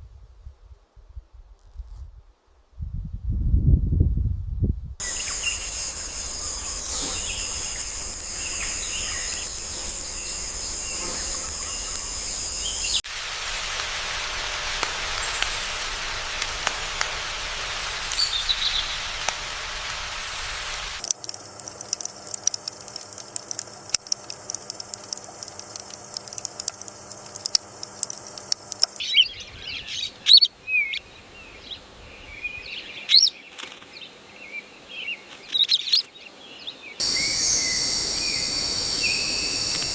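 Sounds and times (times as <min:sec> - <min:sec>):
bird chirps: 0:05.0 - 0:13.0, 0:37.0 - 0:39.9
high-pitched buzz: 0:05.0 - 0:21.0, 0:37.0 - 0:39.9
even hiss: 0:05.0 - 0:30.2, 0:37.0 - 0:39.9.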